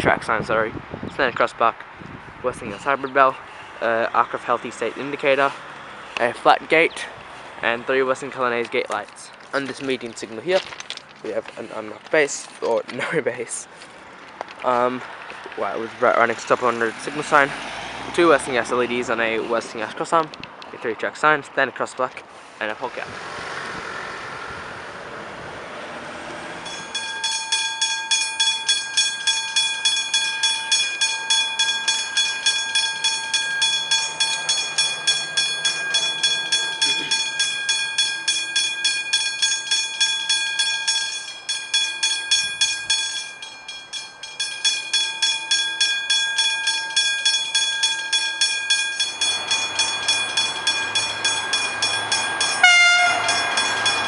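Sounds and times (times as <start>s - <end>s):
level crossing bell ringing: 26.6s - 54.0s
low rumble of approaching train: 30.8s - 54.0s.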